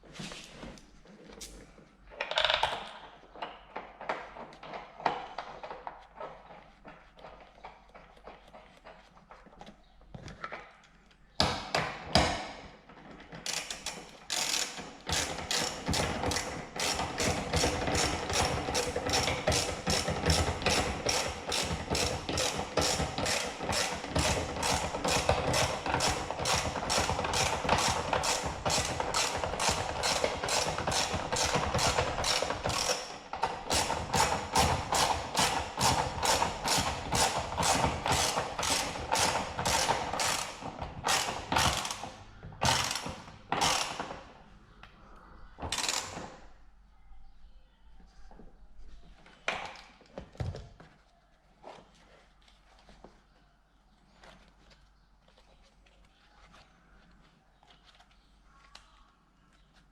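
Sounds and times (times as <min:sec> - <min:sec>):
ratchet wrench clicking: 0:13.5 - 0:17.2.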